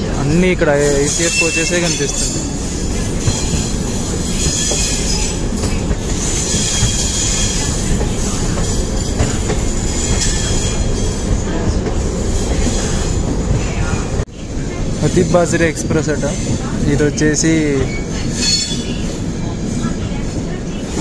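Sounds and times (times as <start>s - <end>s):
train wheels rumbling on track: 0.0s - 21.0s
high wheel squeal: 0.8s - 11.2s.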